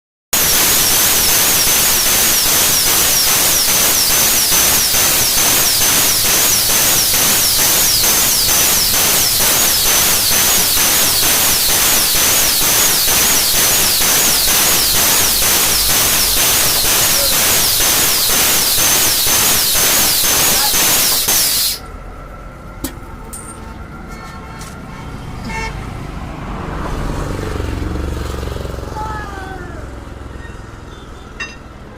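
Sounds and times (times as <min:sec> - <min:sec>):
compressed air hissing: 0:00.4 - 0:21.9.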